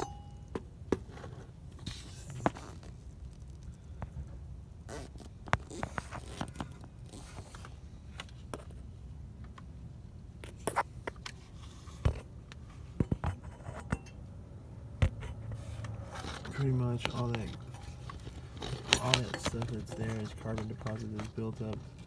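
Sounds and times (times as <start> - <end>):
low steady hum: 0.0 - 22.0
hands handling objects clicking: 16.2 - 22.0.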